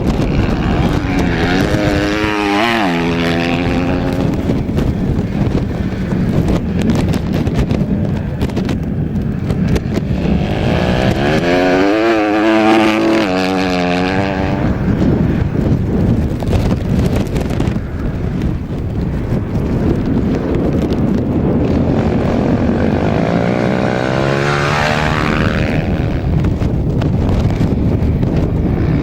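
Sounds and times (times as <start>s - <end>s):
small racing engine at high revs: 0.0s - 7.8s, 9.6s - 15.1s, 21.5s - 26.5s
rough rumbling noise: 0.0s - 29.0s.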